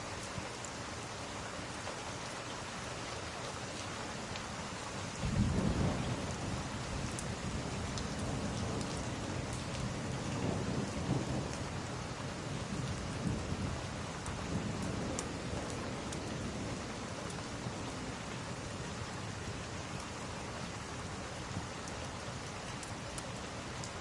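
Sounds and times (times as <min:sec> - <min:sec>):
steady rain hiss: 0:00.0 - 0:24.0
rolling thunder rumble: 0:05.2 - 0:17.2.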